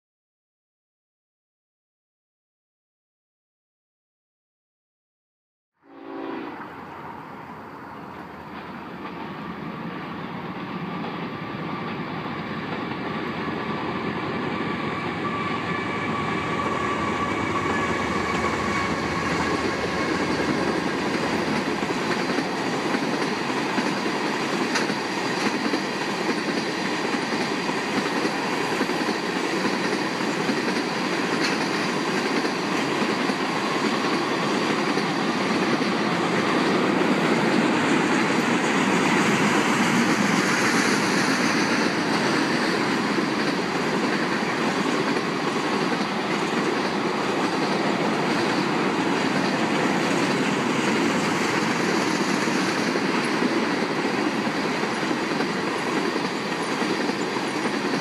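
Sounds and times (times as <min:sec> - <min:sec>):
train wheels rolling on track: 0:06.5 - 0:58.0
faint high wheel squeal: 0:13.4 - 0:20.8.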